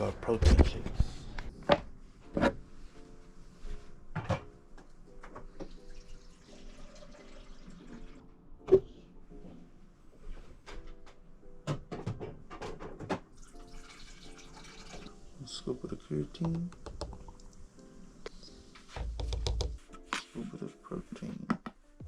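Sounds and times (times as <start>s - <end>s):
tap running water: 13.4s - 15.2s.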